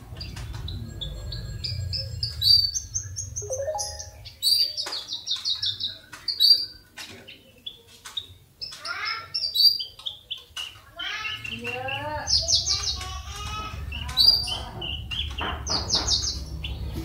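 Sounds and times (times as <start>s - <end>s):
bird chirping and trilling: 0.2s - 6.8s.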